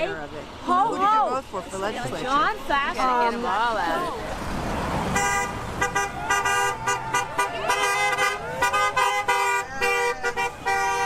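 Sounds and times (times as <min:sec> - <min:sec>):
car horns honking: 0:05.1 - 0:11.0
voices shouting faintly: 0:05.9 - 0:11.0.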